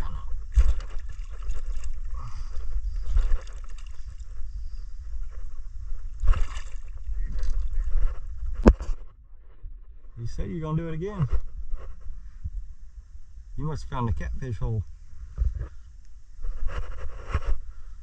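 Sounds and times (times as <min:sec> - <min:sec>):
water sloshing and gurgling: 0:00.0 - 0:09.1
low rumble: 0:00.0 - 0:16.5.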